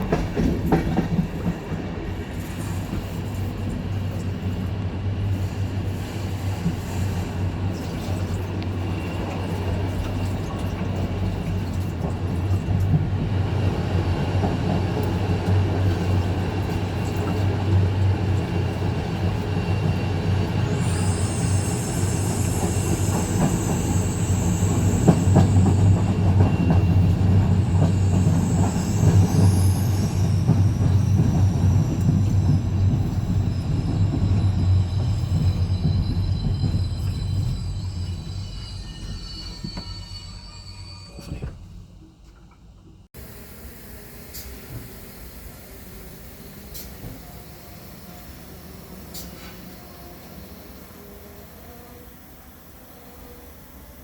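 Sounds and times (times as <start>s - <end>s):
train rumbling on rails: 0.0s - 54.0s
high-pitched wheel squeal: 20.6s - 41.5s.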